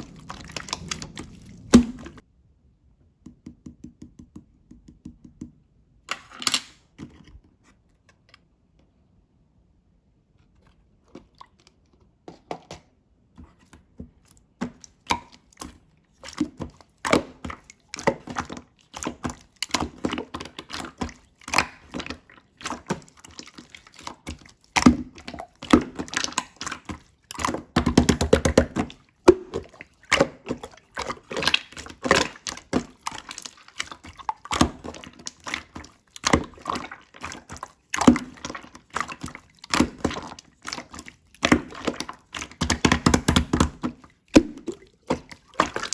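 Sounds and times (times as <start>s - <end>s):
slime squishing with wet pops: 0.0s - 2.2s, 13.8s - 45.9s.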